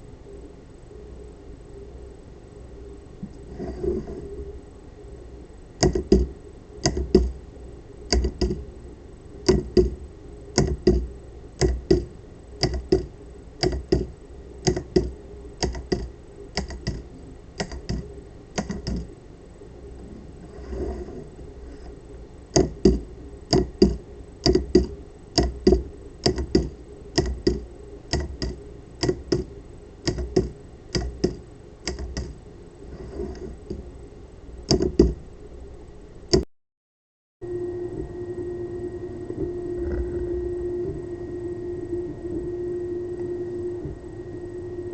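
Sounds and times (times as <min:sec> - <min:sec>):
solenoid clacking: 0:09.4 - 0:10.0, 0:10.6 - 0:17.0, 0:22.6 - 0:32.4.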